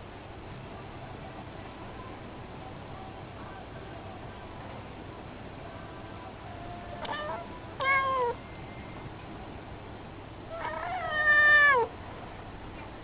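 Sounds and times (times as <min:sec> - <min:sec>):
cat meowing: 0:07.0 - 0:08.4, 0:10.5 - 0:11.9.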